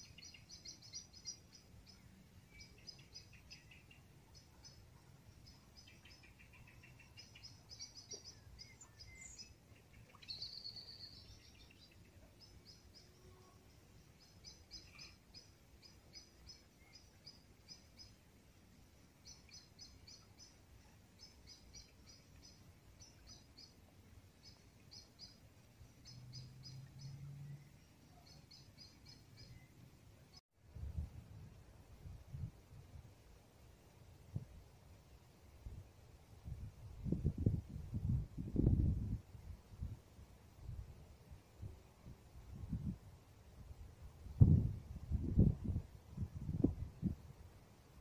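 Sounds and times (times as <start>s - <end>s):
faint small birds chirping: 0.0s - 30.4s.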